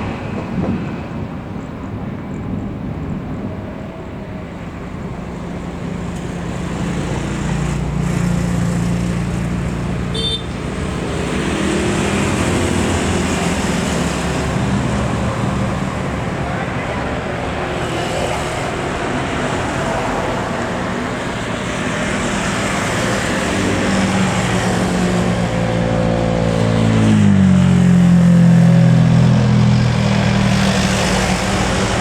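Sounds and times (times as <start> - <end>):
road traffic: 0.0 - 32.0
jet airliner engine noise: 29.2 - 32.0.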